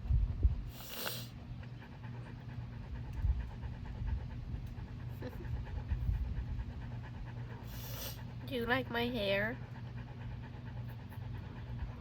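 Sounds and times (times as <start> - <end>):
short hiss: 0.7 - 1.3
dog panting: 1.3 - 12.0.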